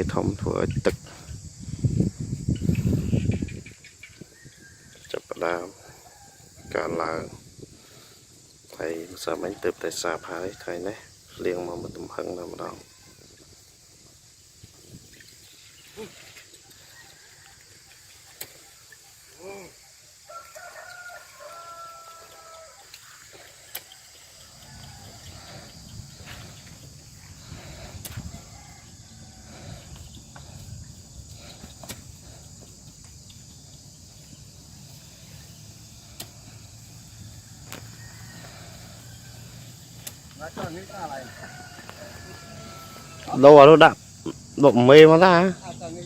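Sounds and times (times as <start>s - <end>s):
rooster crowing: 4.4s - 7.3s, 9.2s - 11.2s, 16.6s - 30.8s, 35.2s - 44.0s.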